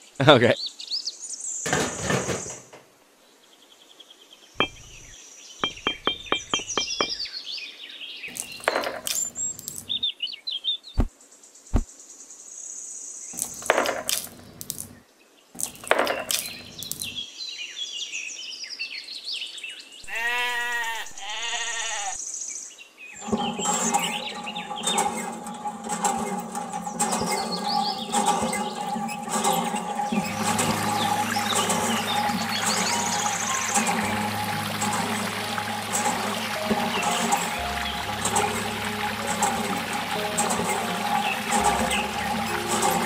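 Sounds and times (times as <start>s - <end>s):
birds chirping: 4.6s - 7.4s, 15.6s - 17.2s, 23.2s - 43.0s
small clicks: 13.4s - 15.0s, 15.6s - 17.2s
sheep bleating: 20.1s - 22.2s
background music: 23.2s - 43.0s.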